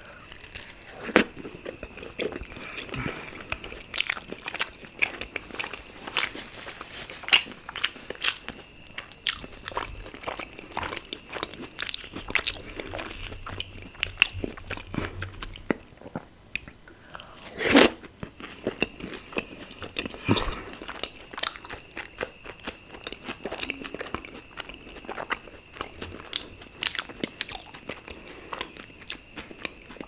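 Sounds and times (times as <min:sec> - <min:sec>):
close-miked chewing: 0:00.0 - 0:30.0.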